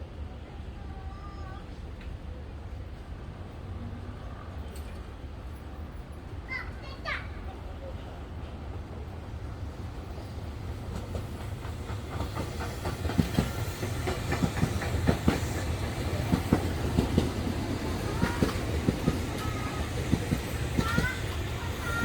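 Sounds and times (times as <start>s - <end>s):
electric train rumbling: 0.0s - 22.0s
wheels clacking on rail joints: 10.7s - 22.0s.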